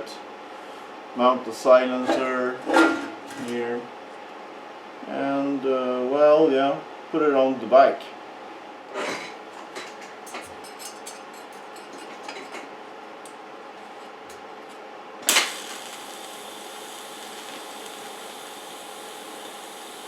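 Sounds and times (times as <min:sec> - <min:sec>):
steady background hum: 0:00.0 - 0:20.0
metal tools clinking: 0:09.2 - 0:12.7
small clicks: 0:15.3 - 0:20.0.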